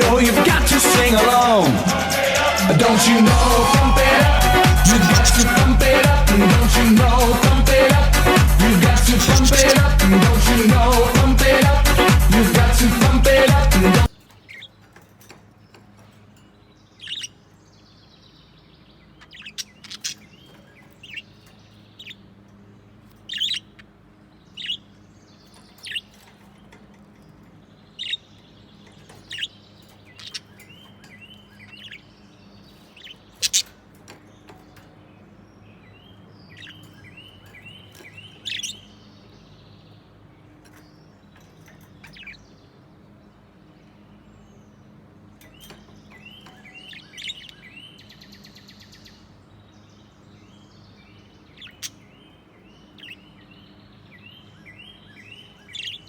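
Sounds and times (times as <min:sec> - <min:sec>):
budgerigars chirping: 0:03.3 - 0:10.1, 0:13.3 - 0:14.9, 0:17.0 - 0:17.4, 0:19.0 - 0:22.3, 0:23.0 - 0:26.7, 0:27.9 - 0:34.8, 0:35.8 - 0:39.4, 0:40.6 - 0:42.6, 0:45.5 - 0:56.0.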